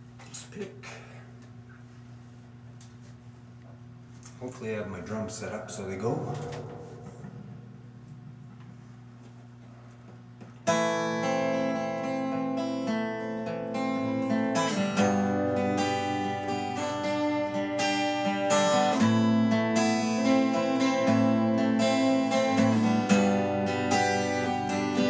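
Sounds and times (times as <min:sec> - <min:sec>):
faint low hum: 0:00.0 - 0:10.6
acoustic guitar strumming: 0:05.4 - 0:08.7, 0:10.6 - 0:25.0.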